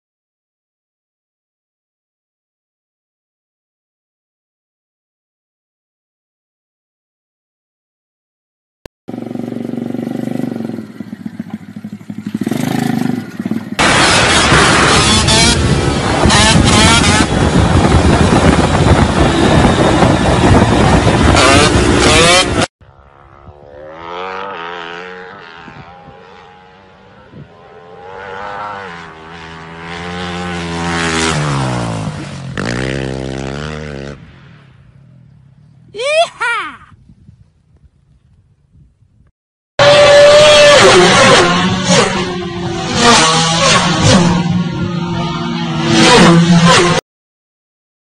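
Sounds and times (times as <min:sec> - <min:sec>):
motorcycle engine running: 0:09.1 - 0:34.1
loud rushing noise: 0:13.8 - 0:22.7.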